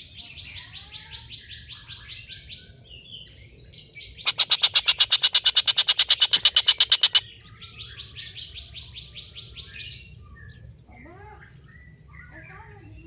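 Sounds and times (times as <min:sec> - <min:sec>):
kingfisher chattering call: 0:04.2 - 0:07.2.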